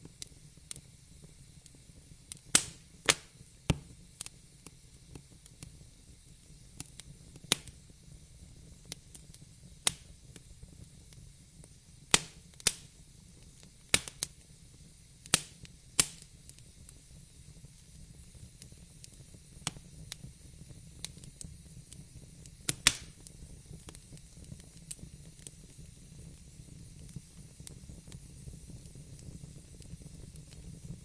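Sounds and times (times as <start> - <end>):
low hiss of burning: 0.0 - 31.0
wood fire crackling: 0.0 - 31.0.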